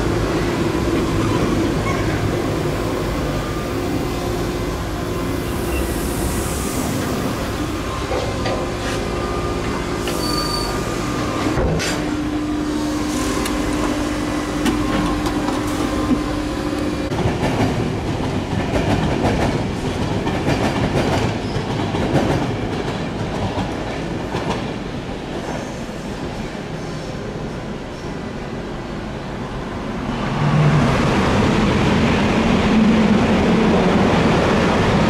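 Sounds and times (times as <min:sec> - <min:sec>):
electric train traction tones: 0:00.4 - 0:17.1.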